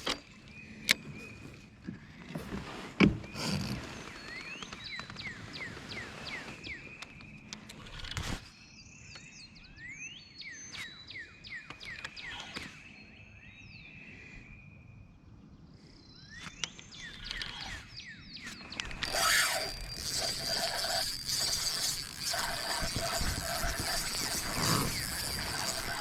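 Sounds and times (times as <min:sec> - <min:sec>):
birds singing: 0:00.0 - 0:02.5, 0:03.1 - 0:26.0
rustling noise: 0:02.2 - 0:07.0.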